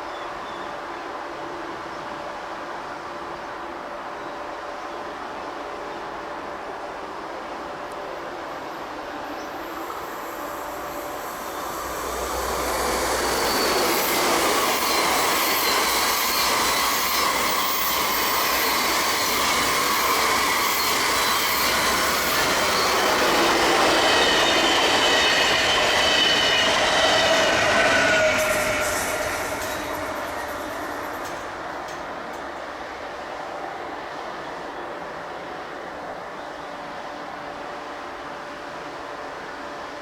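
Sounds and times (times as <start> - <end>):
train rolling past: 0.7 - 40.0
train wheel squeal: 7.5 - 38.6.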